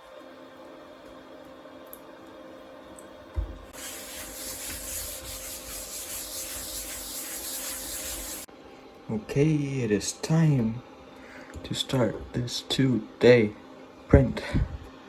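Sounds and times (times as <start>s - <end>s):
rubbing strokes wiping printer bed: 3.7s - 8.5s.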